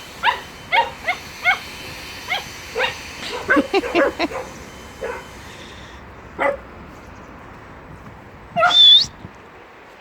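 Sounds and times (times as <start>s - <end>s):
puppy barking: 0.2s - 1.6s, 2.3s - 5.3s, 6.4s - 6.6s, 8.6s - 8.9s
puppy high-pitched yelp: 8.6s - 9.1s.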